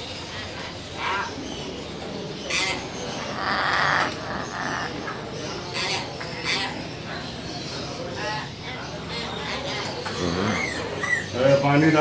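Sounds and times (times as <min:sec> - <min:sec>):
birds squawking: 0:02.5 - 0:06.8.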